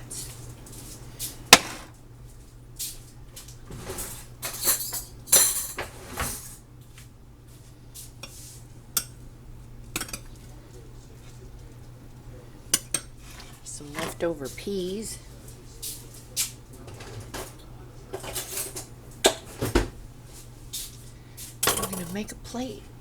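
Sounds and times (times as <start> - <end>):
dishes and cutlery clattering: 3.8 - 6.6, 10.0 - 10.4, 16.8 - 19.9, 21.6 - 22.4
steady low hum: 6.9 - 23.0.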